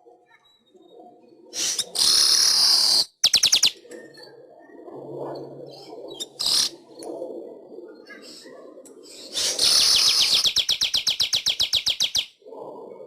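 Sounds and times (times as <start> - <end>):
weaver bird singing: 1.6 - 3.8, 9.1 - 12.3.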